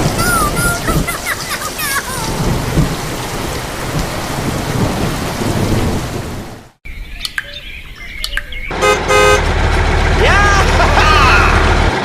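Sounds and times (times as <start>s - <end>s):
heavy rain: 0.0s - 6.8s, 8.7s - 12.0s
low rumbling thunder: 2.2s - 6.7s.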